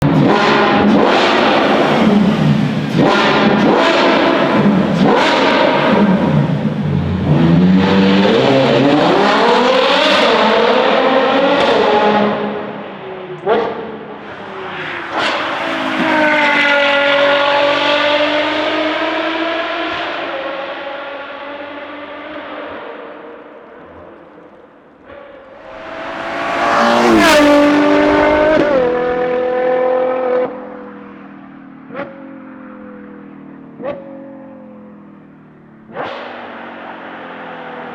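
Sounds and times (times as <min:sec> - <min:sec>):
car engine revving: 0:00.0 - 0:12.8, 0:13.4 - 0:30.8
sports car driving past: 0:25.5 - 0:31.3.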